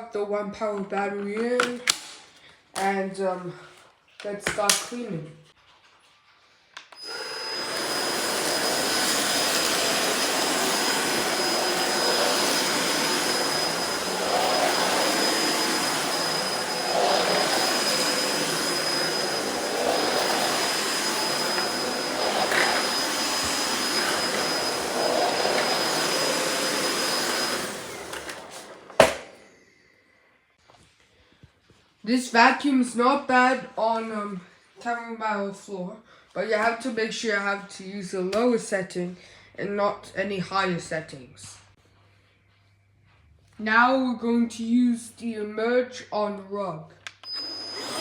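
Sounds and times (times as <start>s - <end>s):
stick vacuum whining: 6.9s - 29.8s, 47.1s - 48.0s.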